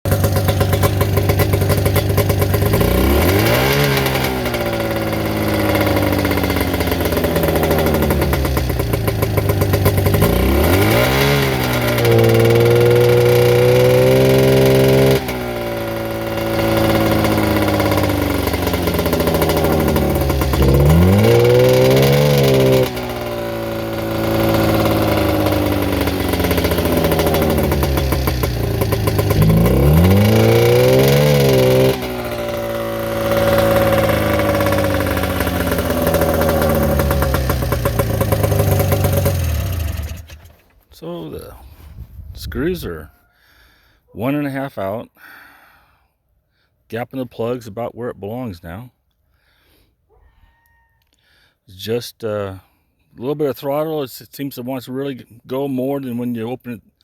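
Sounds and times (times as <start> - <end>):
snowmobile engine revving: 0.0 - 41.6.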